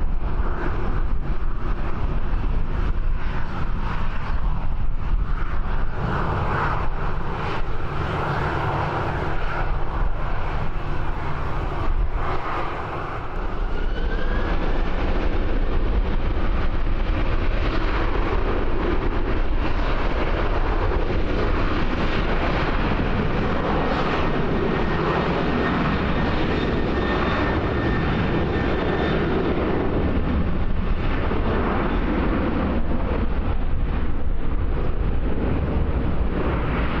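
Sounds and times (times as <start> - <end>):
aircraft turbine engines whining: 0.0 - 37.0
wind rumble on microphone: 0.0 - 37.0.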